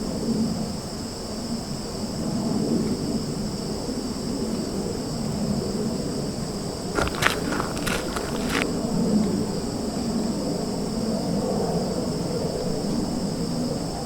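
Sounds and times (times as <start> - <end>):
crickets trilling: 7.0 - 9.0.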